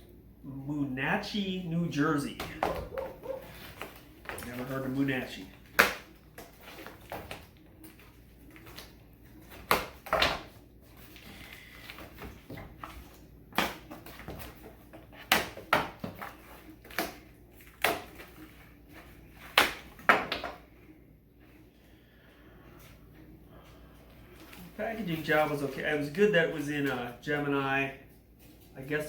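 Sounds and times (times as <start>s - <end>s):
cardboard and packing rustling: 2.5s - 20.5s.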